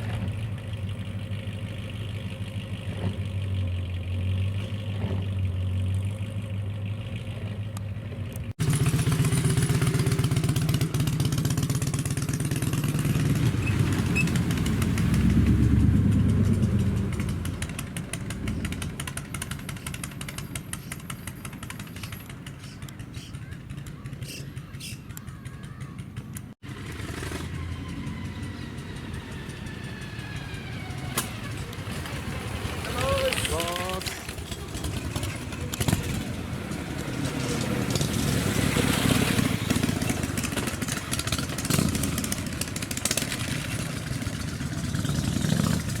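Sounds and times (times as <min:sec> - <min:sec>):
car engine with deep exhaust: 0:00.0 - 0:10.2, 0:11.7 - 0:22.0
car engine rumbling: 0:00.0 - 0:11.0, 0:11.8 - 0:46.0.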